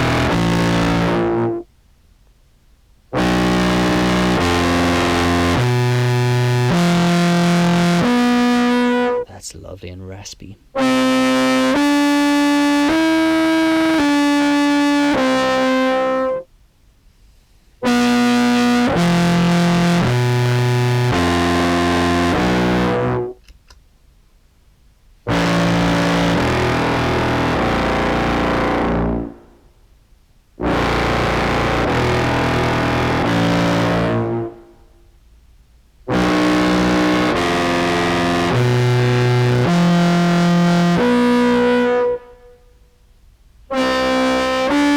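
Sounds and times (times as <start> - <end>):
distorted clarinet held notes: 0.0 - 1.7, 3.2 - 9.5, 10.7 - 16.5, 17.8 - 23.4, 25.3 - 29.6, 30.6 - 34.8, 36.1 - 42.8, 43.7 - 44.9.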